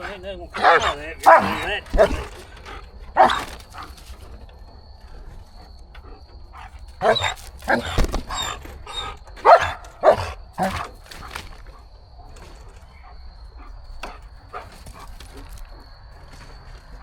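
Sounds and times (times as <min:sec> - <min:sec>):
dog barking: 0:00.0 - 0:04.2, 0:06.5 - 0:11.4, 0:12.9 - 0:15.5.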